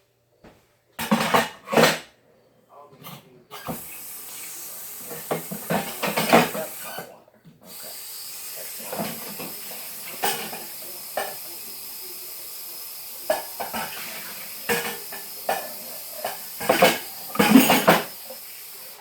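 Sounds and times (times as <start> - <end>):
food sizzling in a pan: 3.6 - 19.0
utensil clinking and scraping pan: 14.7 - 18.1.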